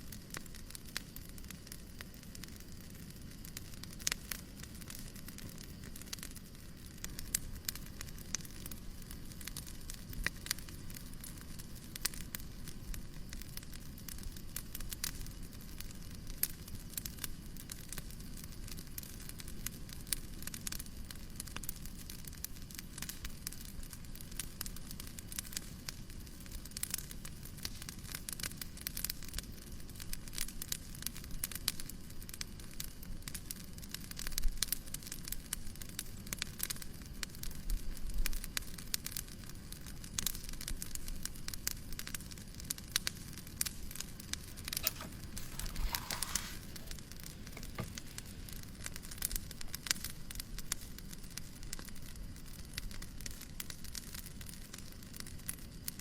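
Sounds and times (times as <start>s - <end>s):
fireplace crackling: 42.9s - 50.9s.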